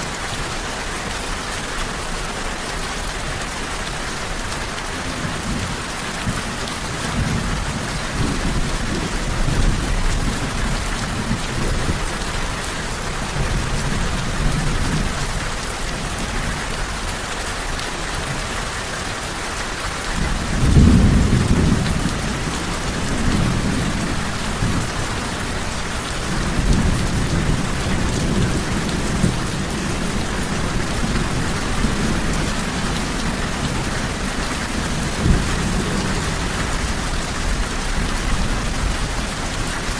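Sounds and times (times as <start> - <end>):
heavy rain: 0.0 - 39.9
rolling thunder: 20.1 - 39.9.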